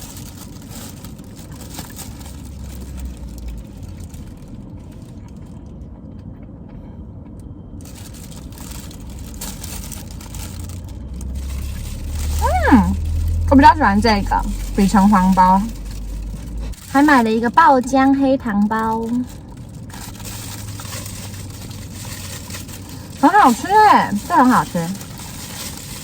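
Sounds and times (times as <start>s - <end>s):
background noise with low rumble: 0.0s - 26.0s.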